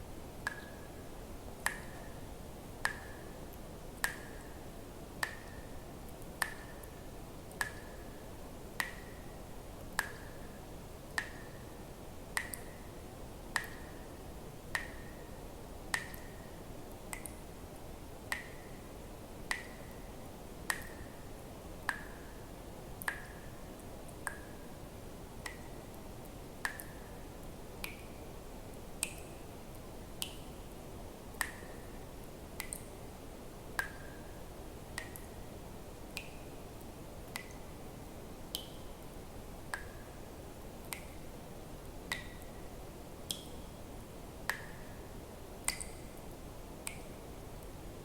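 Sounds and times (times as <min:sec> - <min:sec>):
faint steady hiss: 0:00.0 - 0:48.0
water drops plinking into water: 0:00.4 - 0:00.9, 0:01.6 - 0:02.2, 0:02.8 - 0:03.3, 0:04.0 - 0:04.6, 0:05.2 - 0:08.1, 0:08.8 - 0:09.3, 0:09.9 - 0:10.5, 0:12.4 - 0:12.9, 0:13.6 - 0:14.0, 0:14.7 - 0:15.3, 0:15.9 - 0:16.5, 0:17.1 - 0:17.4, 0:18.3 - 0:18.8, 0:19.5 - 0:20.0, 0:20.7 - 0:21.2, 0:21.9 - 0:22.2, 0:23.0 - 0:23.5, 0:24.2 - 0:24.7, 0:25.4 - 0:25.8, 0:26.6 - 0:27.1, 0:29.0 - 0:29.4, 0:31.3 - 0:31.9, 0:32.6 - 0:32.9, 0:33.8 - 0:34.3, 0:34.9 - 0:35.4, 0:36.1 - 0:36.5, 0:37.3 - 0:37.7, 0:38.5 - 0:39.0, 0:39.7 - 0:40.1, 0:40.8 - 0:41.2, 0:42.0 - 0:42.6, 0:43.2 - 0:43.6, 0:44.5 - 0:44.9, 0:45.6 - 0:46.2.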